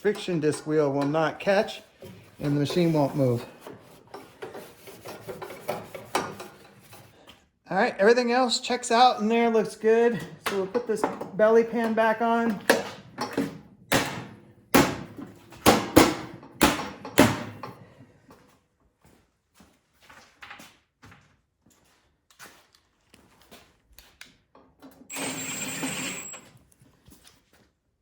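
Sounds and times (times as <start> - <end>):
power tool whirring: 25.1 - 26.5.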